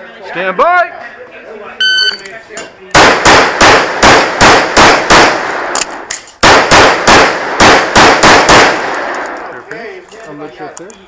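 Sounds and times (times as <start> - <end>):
rapid pistol fire: 3.0 - 5.8, 6.4 - 9.2.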